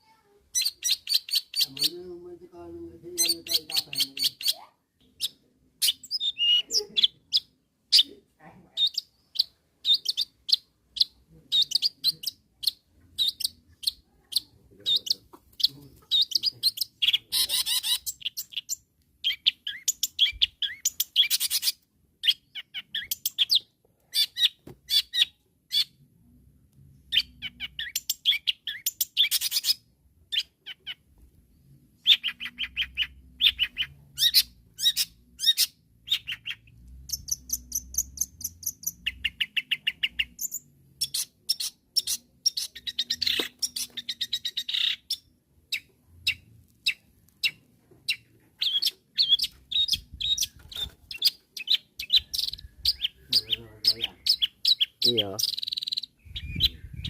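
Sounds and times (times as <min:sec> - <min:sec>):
shrike singing rapid chattering: 0:08.8 - 0:23.6, 0:32.0 - 0:57.0.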